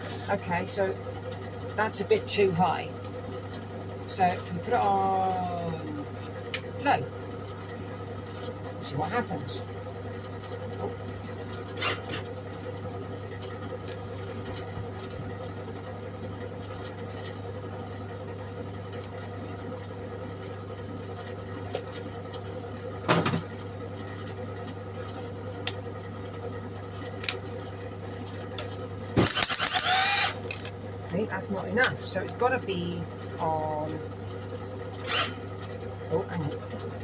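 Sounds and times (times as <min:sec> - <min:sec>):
welder arc buzzing crackle: 0:18.4 - 0:36.1.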